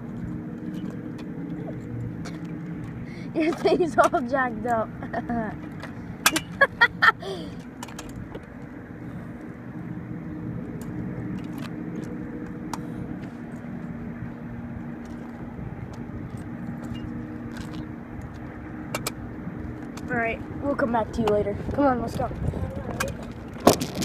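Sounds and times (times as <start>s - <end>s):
tyre and wind noise: 14.2s - 24.0s.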